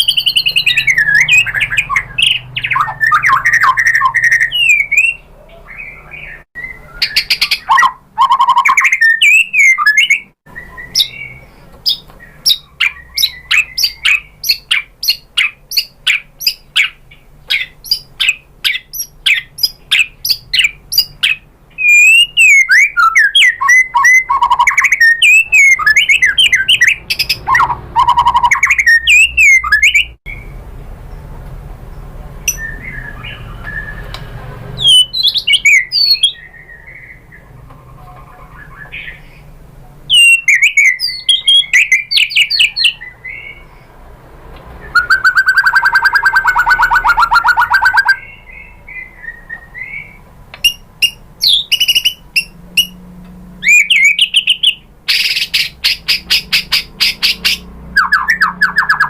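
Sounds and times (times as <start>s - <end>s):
bird singing whistled phrases: 0.0s - 30.5s, 32.5s - 34.2s, 34.8s - 37.4s, 40.1s - 43.7s, 44.8s - 53.0s, 53.6s - 59.0s.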